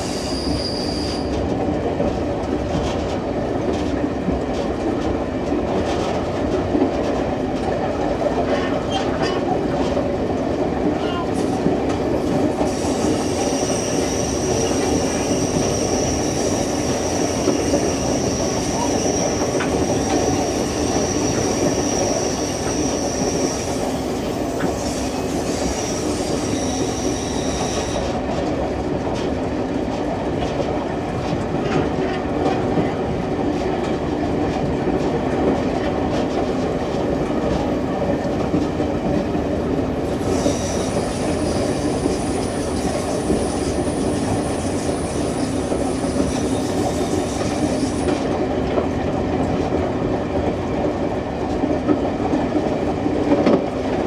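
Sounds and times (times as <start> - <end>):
train wheels squealing: 0.0 - 1.4, 12.6 - 28.2, 40.1 - 48.2
train wheel rumble: 0.0 - 54.0.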